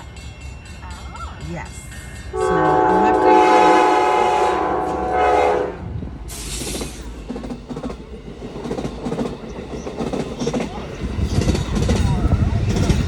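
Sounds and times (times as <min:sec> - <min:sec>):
train horn chord: 0:02.3 - 0:06.0
wheels clacking over rail joints: 0:06.3 - 0:13.0.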